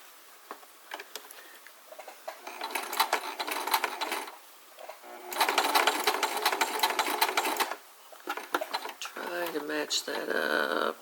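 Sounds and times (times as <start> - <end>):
sewing machine stitching: 2.3 - 4.4, 5.0 - 9.6.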